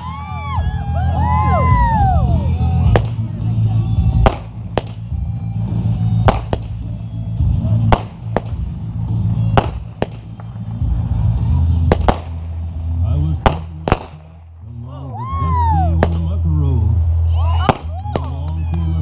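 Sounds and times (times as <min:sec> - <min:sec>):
loud music with heavy bass: 0:00.0 - 0:14.2
fireworks cracking: 0:01.1 - 0:14.7, 0:16.0 - 0:16.4, 0:17.6 - 0:18.5.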